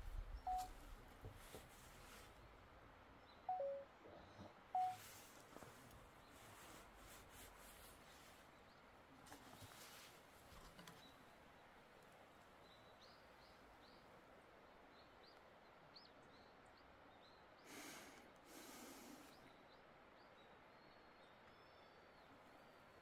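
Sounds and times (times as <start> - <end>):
bird chirping in high notes: 0.5 - 0.7, 3.5 - 3.9, 4.8 - 5.0.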